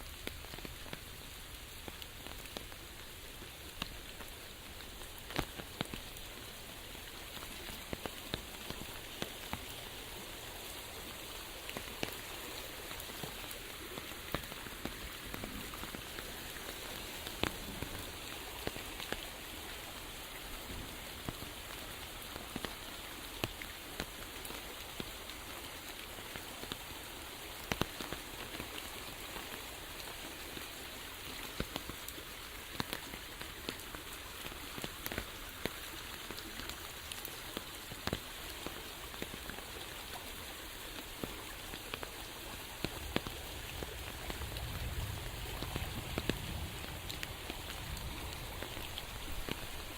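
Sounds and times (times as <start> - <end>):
rain falling: 0.0 - 49.9.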